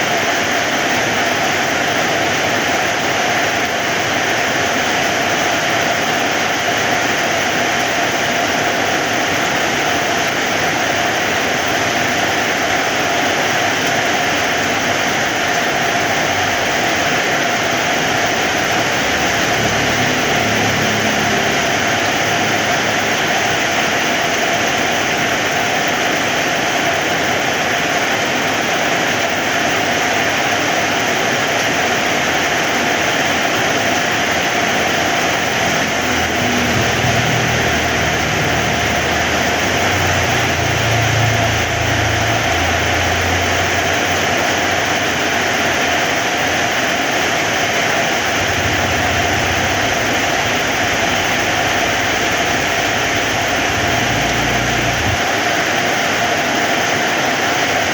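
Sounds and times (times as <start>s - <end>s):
heavy rain falling: 0.0s - 57.9s
low rumble: 34.9s - 44.4s, 48.2s - 55.4s.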